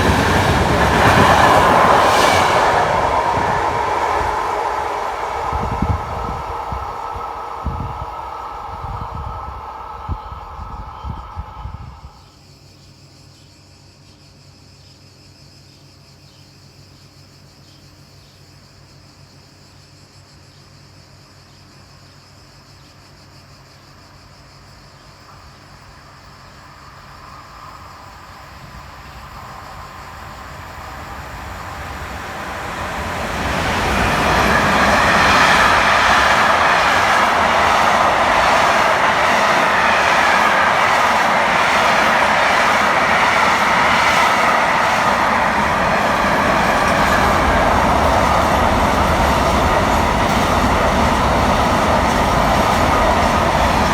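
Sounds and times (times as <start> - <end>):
electric train passing: 0.0 - 12.4, 25.2 - 53.9.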